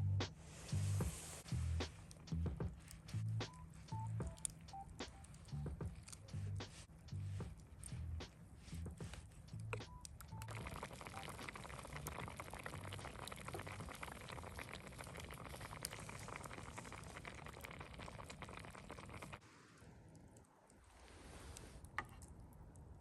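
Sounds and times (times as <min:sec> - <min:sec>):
food sizzling over campfire: 0:10.2 - 0:19.4.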